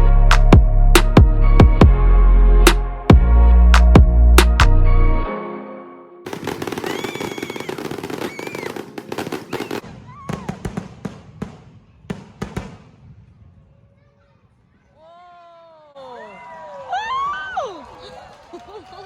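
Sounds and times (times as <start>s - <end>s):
fireworks crackling and banging: 6.3s - 14.5s.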